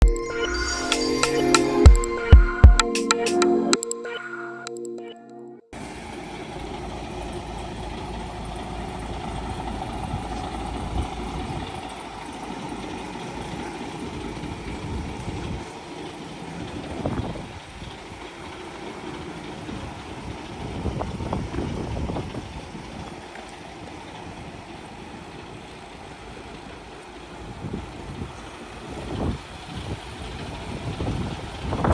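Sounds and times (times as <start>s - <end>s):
diesel truck engine running: 5.8s - 31.9s.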